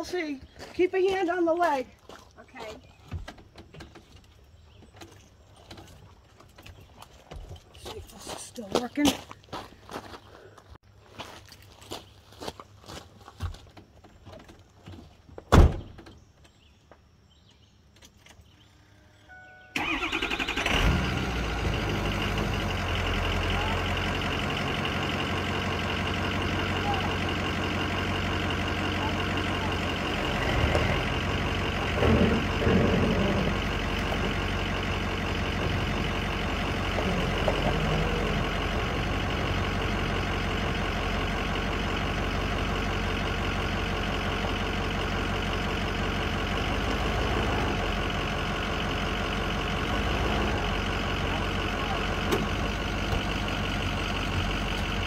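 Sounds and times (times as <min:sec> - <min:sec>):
engine knocks and rattles: 0:00.0 - 0:09.3, 0:19.8 - 0:55.0
pickup engine idling: 0:19.3 - 0:55.0.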